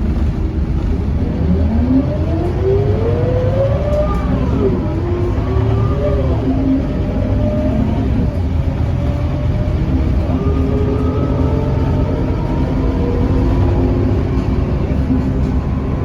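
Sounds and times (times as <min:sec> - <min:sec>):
bus engine drone: 0:00.0 - 0:16.0
gearbox whine: 0:00.0 - 0:16.0.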